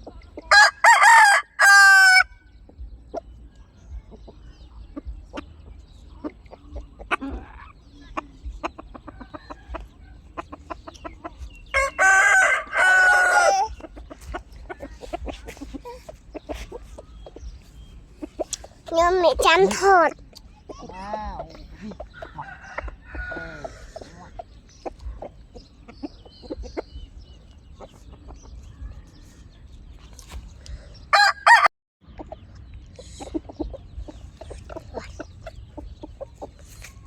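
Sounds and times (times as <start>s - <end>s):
chickens clucking: 0.0s - 37.0s
rooster crowing: 0.5s - 2.3s, 11.7s - 13.7s, 22.2s - 23.8s, 31.1s - 31.7s.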